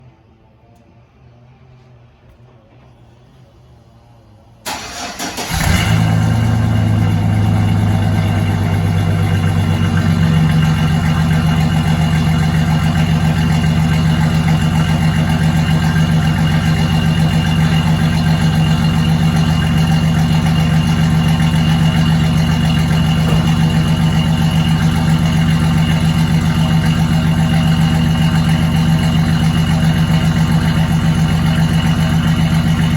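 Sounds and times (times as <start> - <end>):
engine idling: 4.6 - 32.9
engine cranking: 4.7 - 6.0, 17.8 - 27.4.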